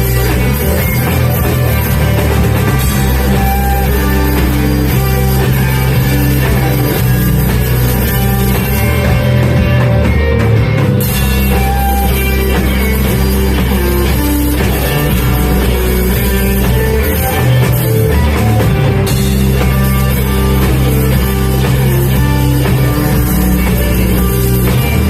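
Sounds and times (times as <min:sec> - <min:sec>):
bass: 0:00.0 - 0:25.0
drum kit: 0:00.0 - 0:25.0
electric guitar lines: 0:00.0 - 0:25.0.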